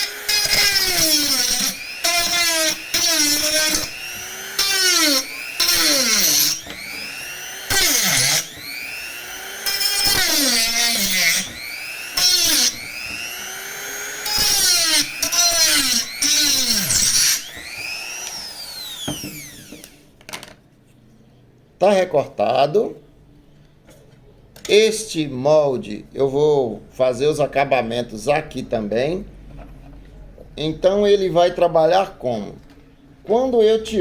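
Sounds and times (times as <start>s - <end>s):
bit cutting plastic pipe: 0.0s - 20.0s
rotary tool motor whine: 0.0s - 20.0s.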